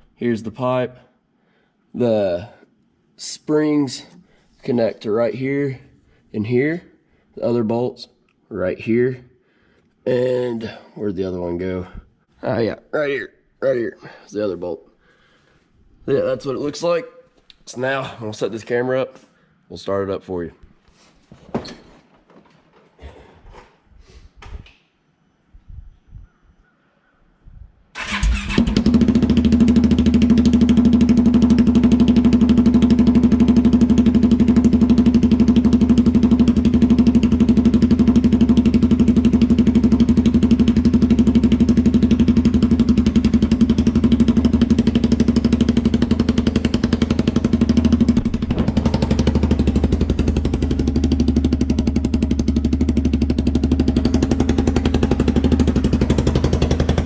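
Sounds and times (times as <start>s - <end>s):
atv engine idling loudly: 28.0s - 57.0s.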